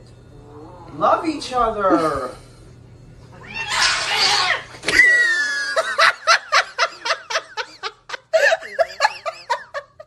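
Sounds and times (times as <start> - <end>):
person laughing: 5.0 - 10.0.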